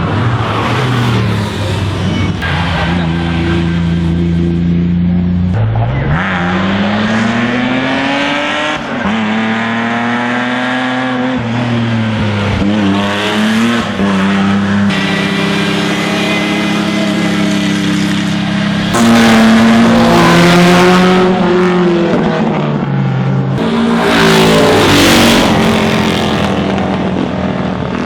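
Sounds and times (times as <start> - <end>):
racing car engine accelerating: 0.0 - 28.0.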